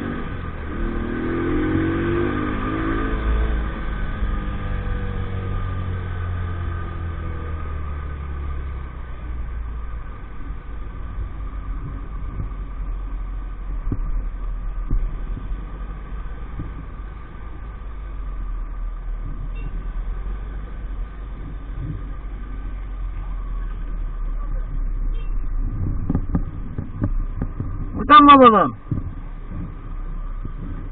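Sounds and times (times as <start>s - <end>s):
light road knocks: 13.8s - 14.2s, 25.9s - 28.0s, 28.8s - 29.8s.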